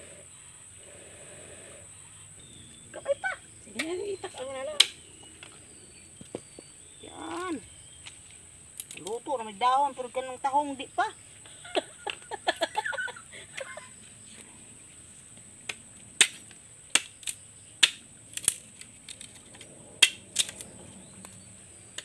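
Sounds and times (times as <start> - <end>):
firewood crackling: 2.6 - 9.5, 15.2 - 22.0.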